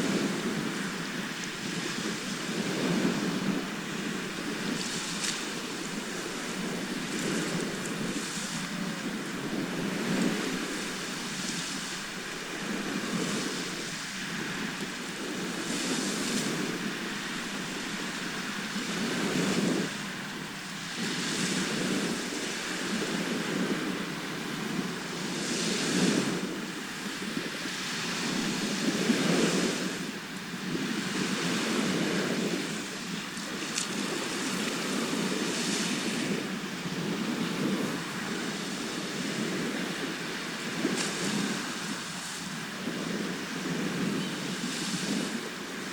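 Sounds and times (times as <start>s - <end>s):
sea waves breaking on shore: 0.0s - 45.9s.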